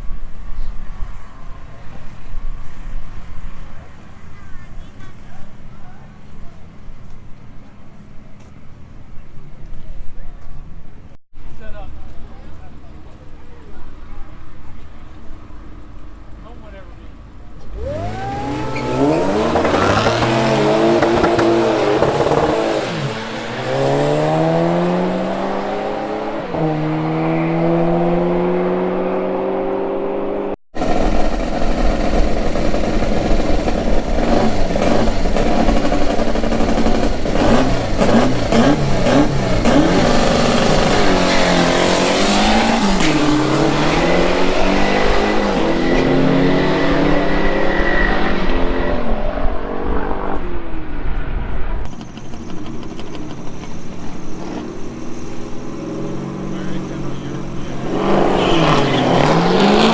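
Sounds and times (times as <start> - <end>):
car engine accelerating: 12.8 - 59.9.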